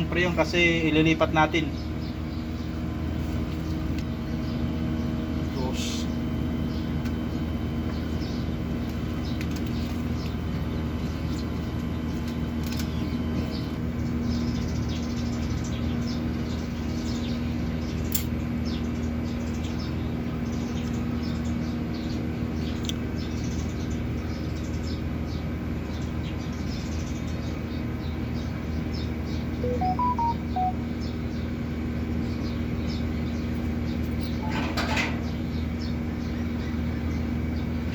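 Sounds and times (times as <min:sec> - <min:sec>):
air conditioner unit humming: 0:00.0 - 0:37.9.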